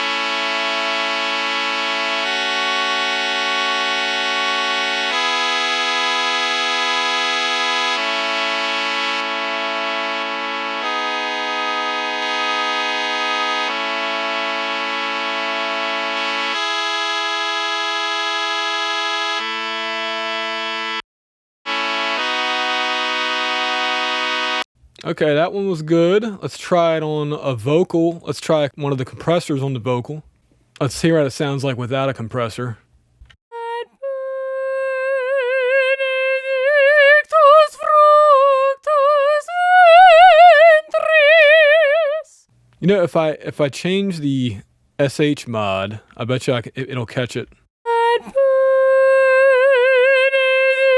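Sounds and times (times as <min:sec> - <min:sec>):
woman singing with vibrato: 0:00.0 - 0:17.4, 0:33.5 - 0:42.4, 0:47.9 - 0:50.9
brass section playing chords: 0:00.0 - 0:21.0, 0:21.7 - 0:24.7.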